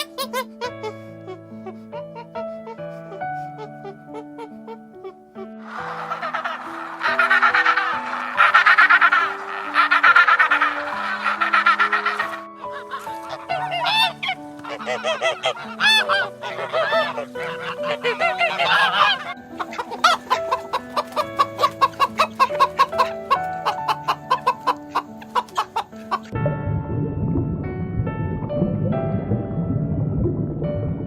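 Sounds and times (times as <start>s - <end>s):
background music: 0.0s - 31.0s
honking goose-like bird calls: 5.6s - 26.4s
short clucking pulses: 5.7s - 26.3s.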